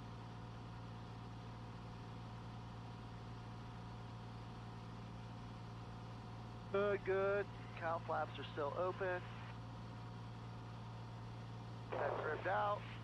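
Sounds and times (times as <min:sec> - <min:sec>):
propeller plane engine droning: 0:06.7 - 0:13.0.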